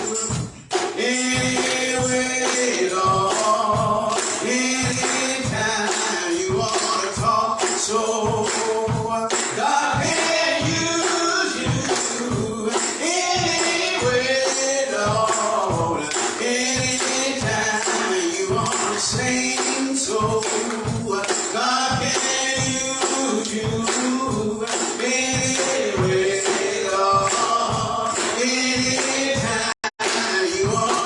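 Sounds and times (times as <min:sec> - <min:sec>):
people singing gospel: 0:00.0 - 0:31.0
tambourine beat: 0:00.0 - 0:31.0.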